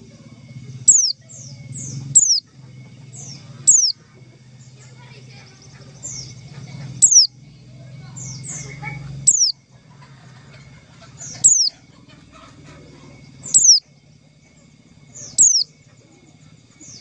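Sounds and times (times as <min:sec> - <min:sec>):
bird call sliding downward: 0:00.9 - 0:01.2, 0:02.1 - 0:02.4, 0:03.6 - 0:04.0, 0:07.0 - 0:07.3, 0:09.2 - 0:09.6, 0:11.2 - 0:11.8, 0:13.4 - 0:13.8, 0:15.3 - 0:15.7.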